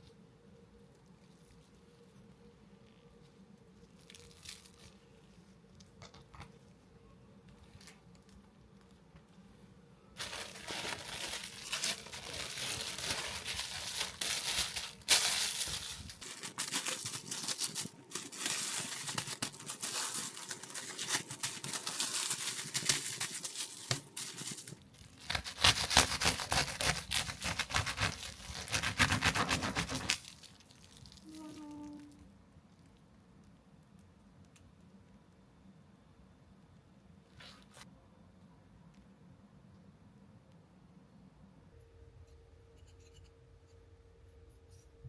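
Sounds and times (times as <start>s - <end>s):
crinkling and rustling handling noise: 0.0s - 34.9s.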